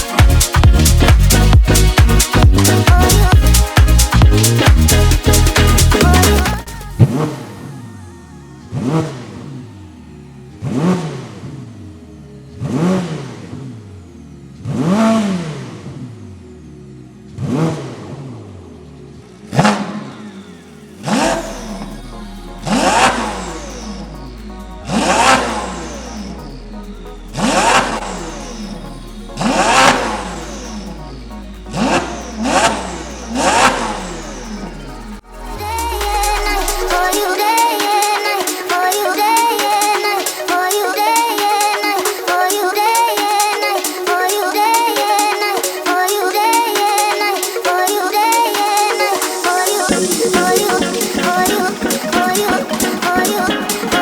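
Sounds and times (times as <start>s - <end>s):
car engine revving: 0.0s - 37.5s
background music with deep bass: 0.0s - 54.0s.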